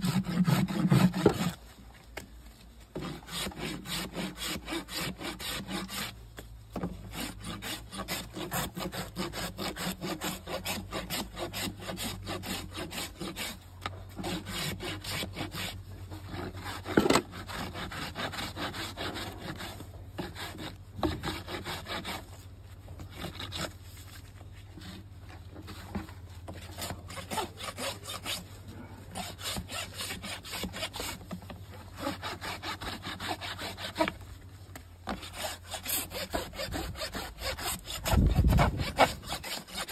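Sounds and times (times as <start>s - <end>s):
tool scraping horse hoof: 0.0s - 39.9s.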